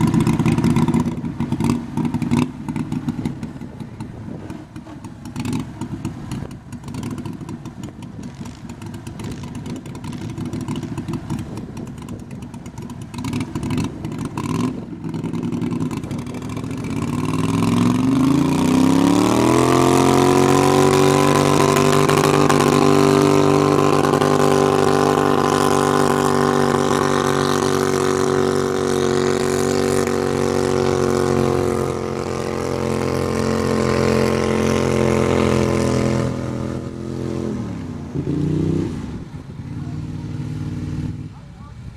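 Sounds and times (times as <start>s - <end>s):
garden tractor engine revving: 12.4s - 41.4s.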